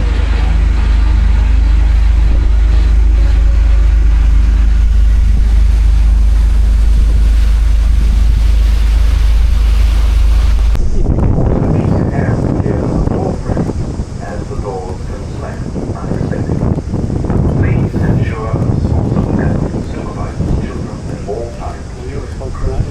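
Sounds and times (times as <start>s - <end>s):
boat engine rumbling: 0.0s - 22.9s
wind on microphone: 0.0s - 22.9s.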